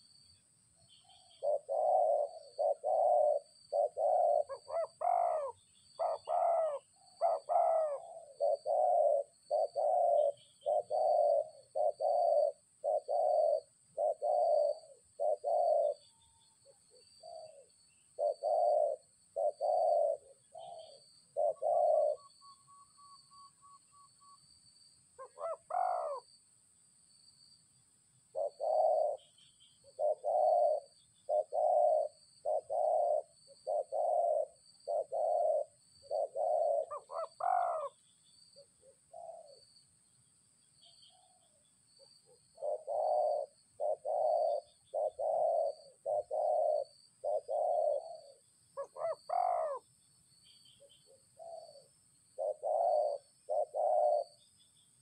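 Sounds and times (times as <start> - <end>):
high insect trill: 0.0 - 55.0
dove cooing: 0.9 - 24.0, 25.2 - 26.3, 28.3 - 38.0, 38.6 - 39.7, 40.8 - 49.9, 50.6 - 54.5.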